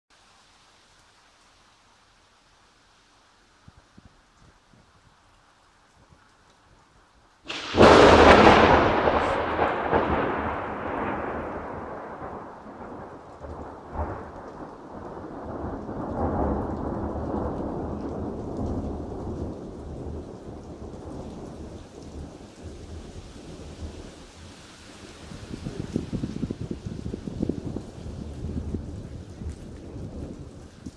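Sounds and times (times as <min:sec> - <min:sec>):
loud thunder crack: 0:07.5 - 0:21.8
long thunder rumble: 0:07.5 - 0:24.3, 0:25.0 - 0:30.9.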